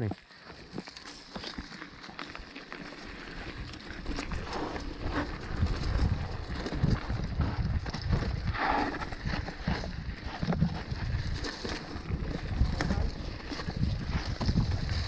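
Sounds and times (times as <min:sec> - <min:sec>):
bicycle rattling over dirt trail: 0:00.0 - 0:15.0.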